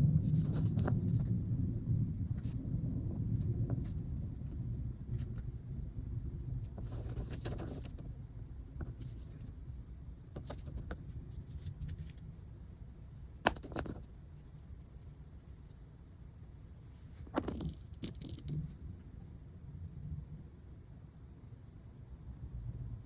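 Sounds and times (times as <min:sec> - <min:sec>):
low rumble: 0:00.0 - 0:10.3, 0:18.4 - 0:23.0.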